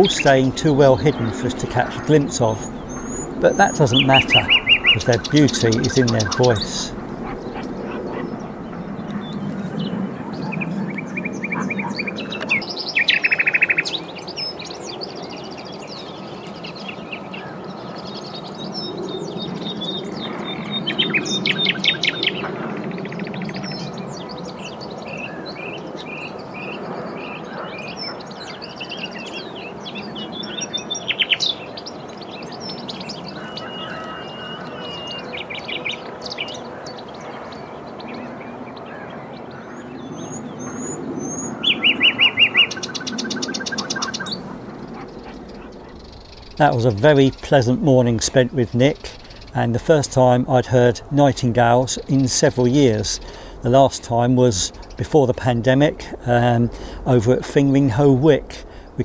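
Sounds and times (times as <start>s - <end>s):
low background rumble: 0.0s - 9.4s, 44.4s - 59.0s
nightingales singing: 0.0s - 9.5s, 40.1s - 59.0s.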